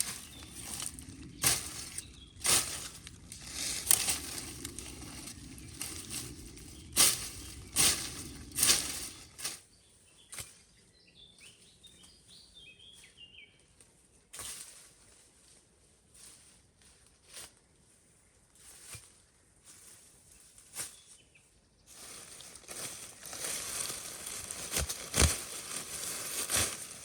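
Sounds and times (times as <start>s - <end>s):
small bird chirping: 0.0s - 9.4s
brush and branches crunching: 0.0s - 9.6s, 21.9s - 27.0s.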